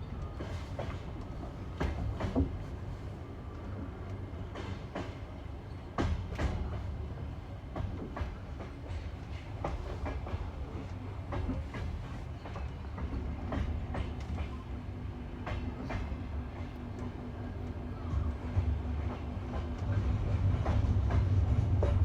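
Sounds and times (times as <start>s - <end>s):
low train rumble: 0.0s - 22.0s
train wheels clicking over rail joints: 0.1s - 2.8s, 3.5s - 17.8s.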